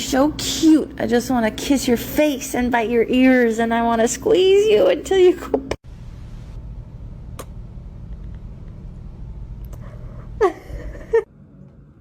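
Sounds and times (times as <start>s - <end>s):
steady low rumble: 5.8s - 12.0s.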